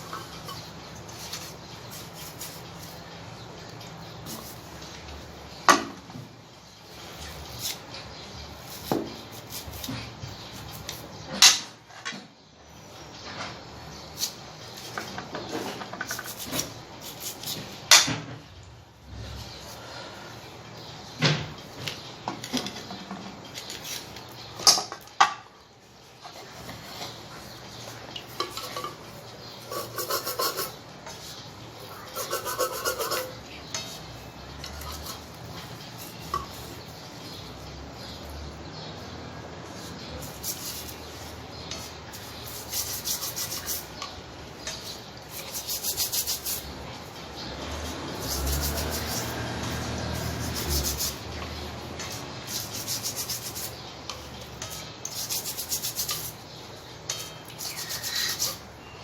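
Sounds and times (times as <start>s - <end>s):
hand sanding with quick strokes: 29.6s - 31.4s, 32.0s - 33.3s, 39.8s - 43.9s, 45.3s - 46.7s, 47.8s - 51.3s, 52.1s - 53.8s, 54.7s - 56.4s, 57.6s - 58.6s.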